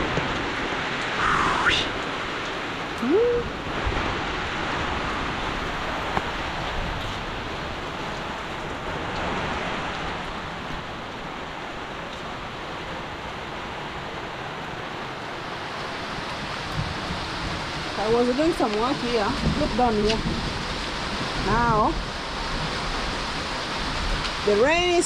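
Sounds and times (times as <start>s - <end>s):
heavy rain: 0.0s - 25.0s
brief rising tone: 1.2s - 1.9s.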